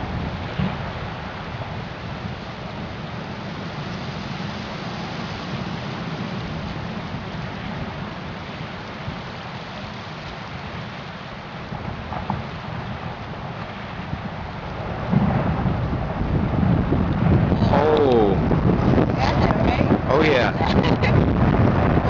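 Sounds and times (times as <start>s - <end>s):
rushing water: 0.0s - 22.0s
wind: 0.0s - 22.0s
wind buffeting microphone: 0.0s - 22.0s.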